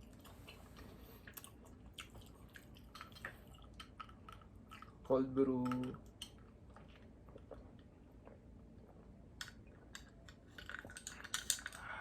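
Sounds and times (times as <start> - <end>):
chewing and mouth sounds: 0.0 - 5.1, 5.8 - 11.9.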